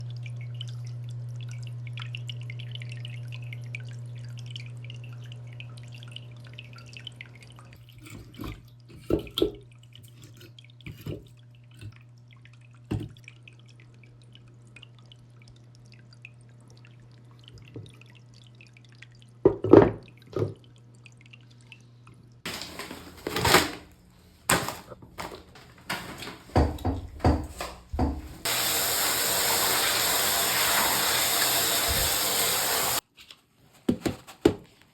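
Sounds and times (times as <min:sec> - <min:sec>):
water trickling: 0:00.0 - 0:22.9
aquarium filter humming: 0:00.0 - 0:33.0
wood and stones knocking: 0:24.5 - 0:28.4.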